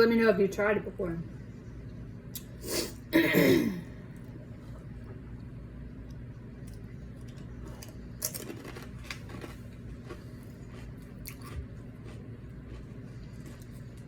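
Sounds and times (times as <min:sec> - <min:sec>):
low steady hum: 0:00.0 - 0:14.0
chips being bitten and chewed: 0:06.7 - 0:14.0.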